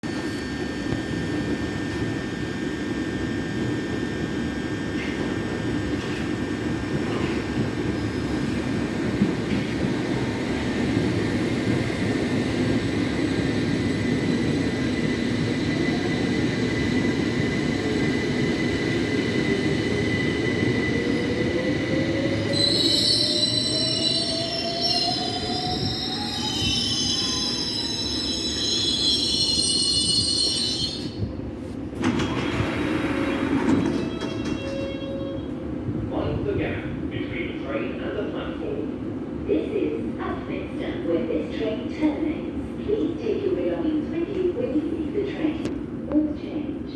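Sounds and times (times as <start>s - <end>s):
electric train rumble: 0.0s - 46.0s.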